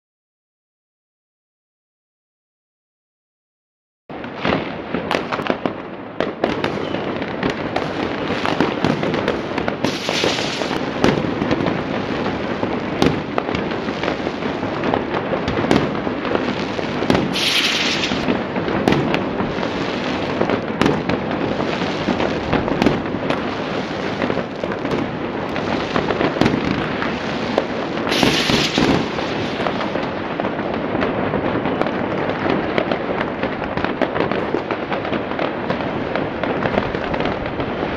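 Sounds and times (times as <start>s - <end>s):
fireworks bangs and crackling: 4.1s - 37.9s
fireworks hissing bursts: 6.8s - 14.6s, 15.6s - 20.5s, 25.6s - 30.2s.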